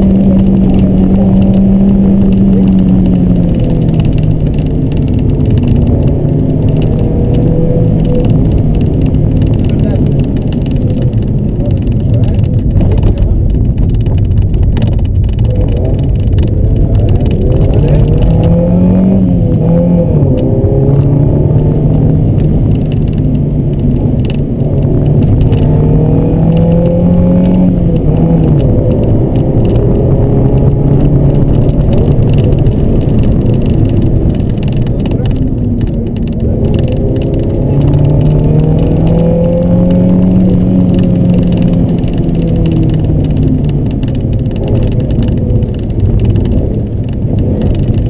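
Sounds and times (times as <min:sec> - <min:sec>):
car engine revving from inside: 0:14.5 - 0:48.0.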